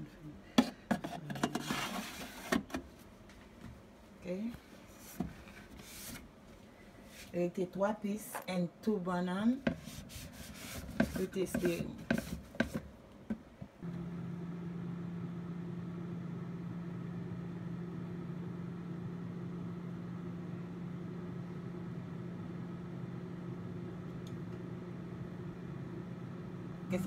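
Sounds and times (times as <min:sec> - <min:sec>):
air fryer fan humming: 0:10.0 - 0:27.0.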